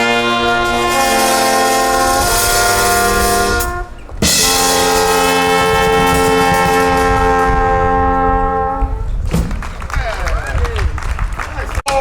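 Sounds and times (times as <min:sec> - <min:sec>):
brass band playing chords: 0:00.0 - 0:09.1.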